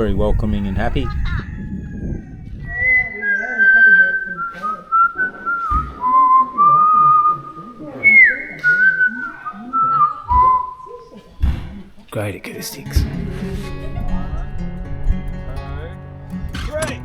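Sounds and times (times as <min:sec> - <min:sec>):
dull thumps: 0:16.3 - 0:17.0.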